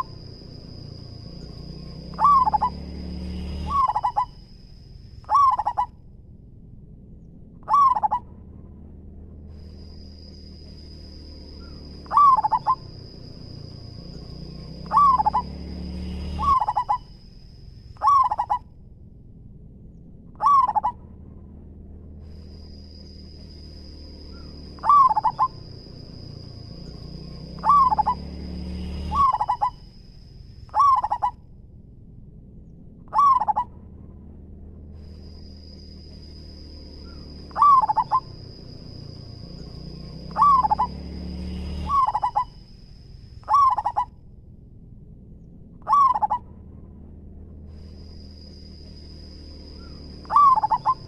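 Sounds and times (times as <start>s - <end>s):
dove cooing: 2.1s - 2.8s, 3.4s - 4.4s, 5.2s - 5.9s, 7.6s - 8.2s, 11.6s - 13.6s, 14.8s - 15.6s, 16.2s - 17.1s, 18.0s - 18.6s, 20.4s - 21.0s, 24.4s - 26.6s, 27.5s - 28.3s, 29.0s - 29.8s, 30.7s - 31.4s, 33.1s - 33.7s, 37.1s - 38.4s, 40.3s - 41.0s, 41.9s - 42.5s, 43.4s - 44.1s, 45.8s - 46.4s, 49.8s - 51.0s.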